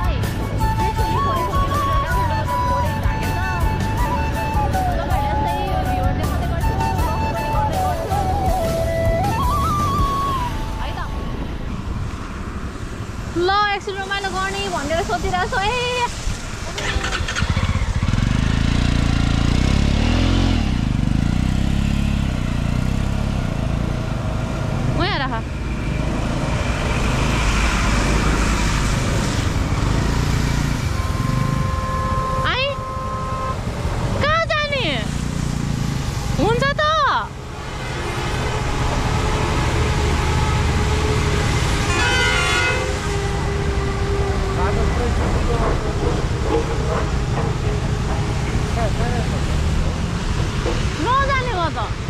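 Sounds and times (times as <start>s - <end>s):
motorcycle engine revving: 16.6s - 52.0s
horn honking: 30.4s - 34.8s, 37.7s - 48.6s.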